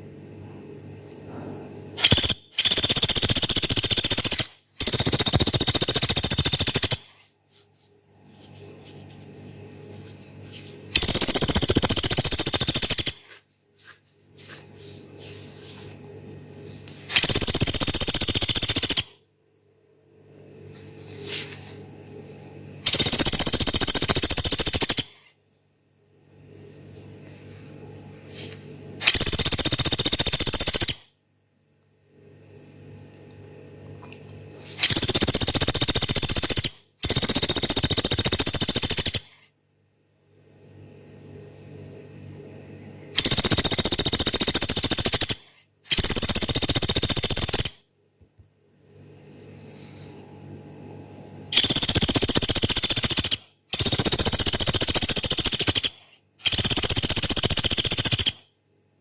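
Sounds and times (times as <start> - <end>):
woodpecker rattling calls: 2.0 - 7.1, 11.0 - 13.2, 17.2 - 19.1, 22.9 - 25.2, 29.0 - 31.0, 43.2 - 47.7, 51.6 - 58.4.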